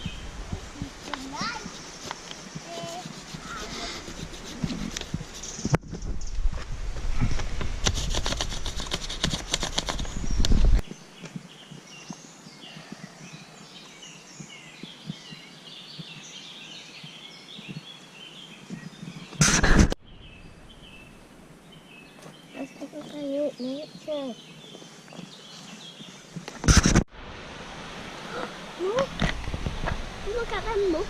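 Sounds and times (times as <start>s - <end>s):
songbirds chirping: 0.0s - 6.5s, 9.9s - 26.6s.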